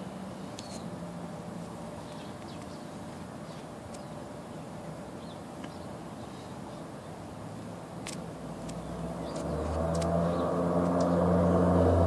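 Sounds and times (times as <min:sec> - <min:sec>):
low outdoor hum: 0:00.0 - 0:12.0.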